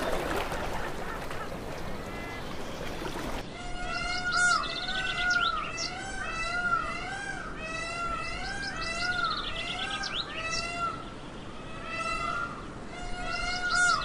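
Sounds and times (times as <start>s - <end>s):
bird trills: 0.0s - 7.1s
birds calling: 0.0s - 14.0s.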